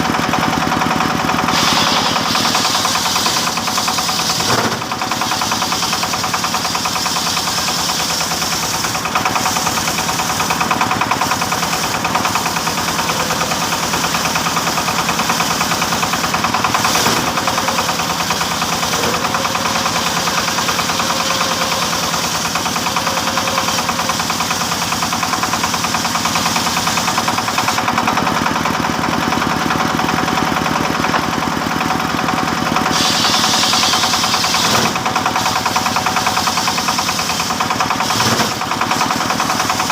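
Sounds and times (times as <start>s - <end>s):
engine-driven saw cutting wood: 0.0s - 39.9s.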